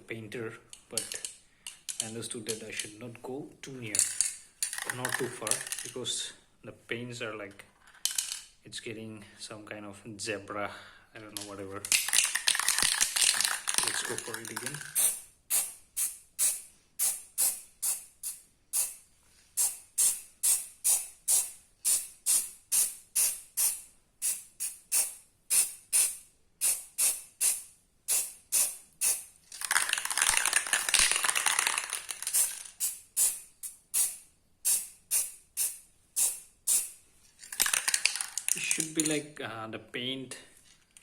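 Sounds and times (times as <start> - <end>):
aerosol can ball rattling: 4.0 - 5.9, 11.4 - 16.6, 26.7 - 39.1
aerosol spray burst: 19.6 - 29.3, 34.0 - 37.0.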